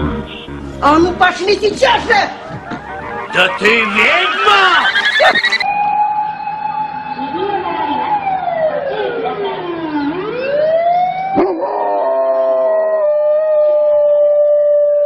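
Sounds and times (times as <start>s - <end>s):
siren wailing: 1.5s - 15.0s
dog howling: 11.4s - 14.8s.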